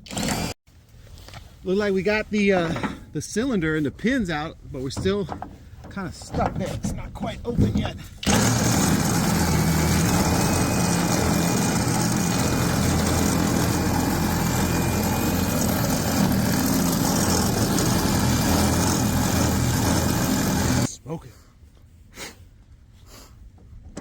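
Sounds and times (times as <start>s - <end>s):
power drill boring into metal: 0.0s - 0.6s, 8.2s - 20.9s.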